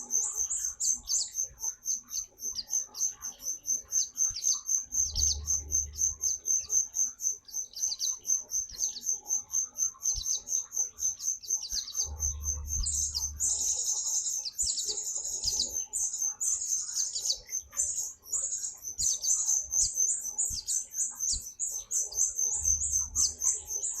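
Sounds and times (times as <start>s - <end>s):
bird chirping and trilling: 0.0s - 24.0s
low rumble: 5.0s - 6.4s, 12.1s - 13.8s, 22.5s - 23.6s.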